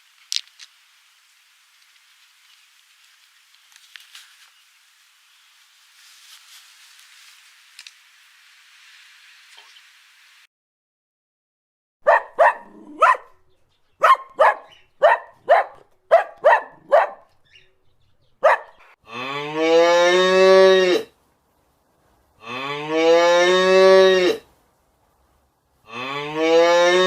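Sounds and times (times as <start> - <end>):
cow mooing: 18.4 - 21.1, 22.4 - 24.4, 25.9 - 27.0.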